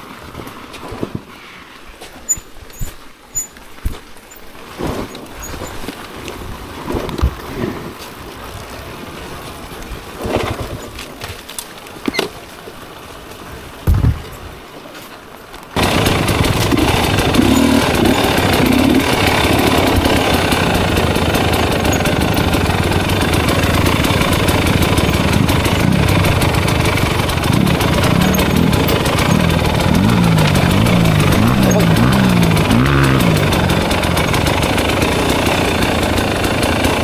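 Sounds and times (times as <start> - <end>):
clutch thud: 13.9 - 14.4, 15.8 - 36.5
dirt bike engine running: 15.8 - 37.0.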